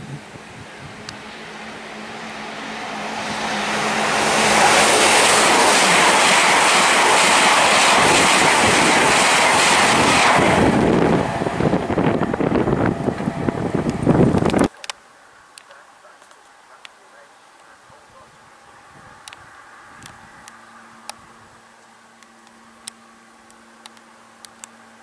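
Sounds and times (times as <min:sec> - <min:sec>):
train passing at speed: 0:00.0 - 0:14.7, 0:18.8 - 0:23.4.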